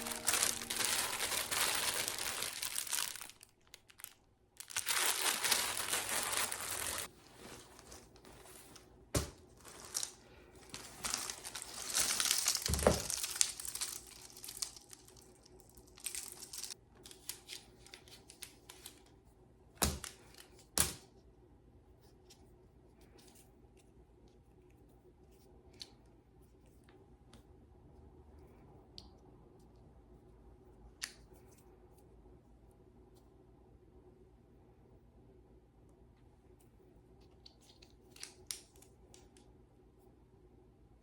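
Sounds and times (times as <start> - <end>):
material rustling and crinkling: 0.0 - 19.0.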